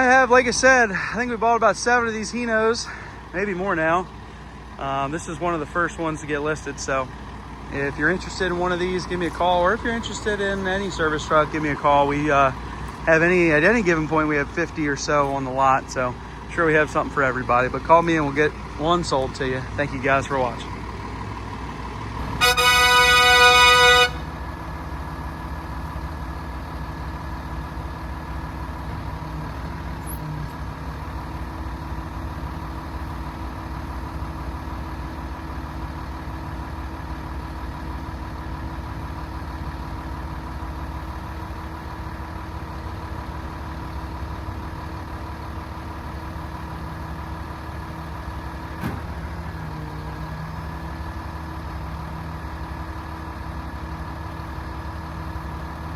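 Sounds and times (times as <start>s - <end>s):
diesel engine idling: 0.0s - 55.9s
truck horn: 22.2s - 24.4s.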